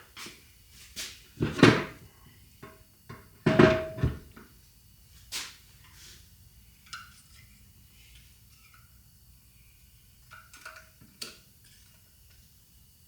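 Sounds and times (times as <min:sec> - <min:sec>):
metal hardware knocking and clinking: 0:03.4 - 0:04.2.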